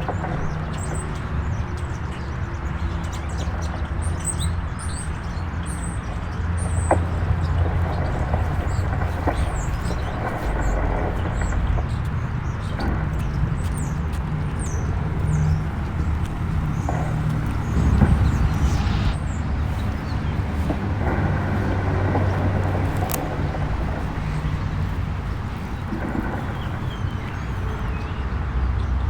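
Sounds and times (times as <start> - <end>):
engine humming: 0.0 - 28.3
bird chirps: 6.7 - 28.2.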